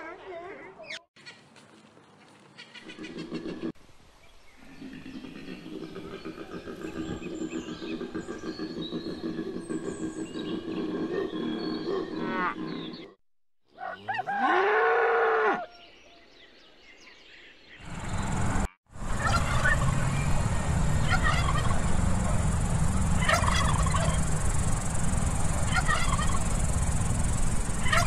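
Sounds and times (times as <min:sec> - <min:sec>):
turkey and chicken calls: 0:02.2 - 0:03.7, 0:04.8 - 0:13.1, 0:13.8 - 0:14.7, 0:19.1 - 0:20.0, 0:21.0 - 0:28.0
cow mooing: 0:13.9 - 0:15.7
steady hiss: 0:21.8 - 0:28.0.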